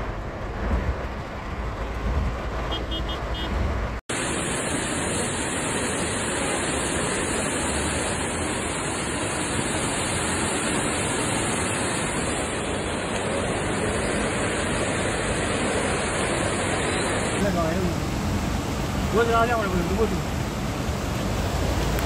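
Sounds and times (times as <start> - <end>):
floodwater rushing: 0.0 - 22.0
heavy rain: 3.8 - 22.0.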